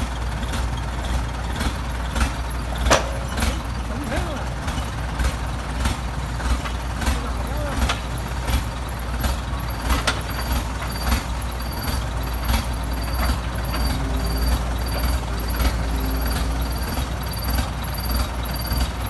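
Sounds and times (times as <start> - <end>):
diesel excavator engine running: 0.0 - 19.0
sharp metallic knocks: 2.8 - 3.8
faint high-pitched tone: 12.2 - 18.2.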